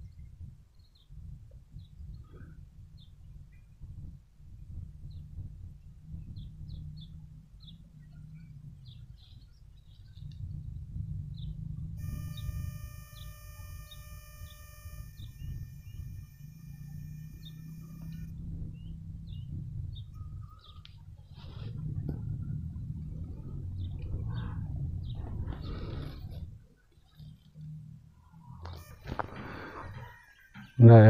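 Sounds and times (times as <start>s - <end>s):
small birds chirping: 5.0s - 21.8s, 23.3s - 31.0s
high-pitched tone: 12.0s - 18.3s, 28.8s - 29.7s.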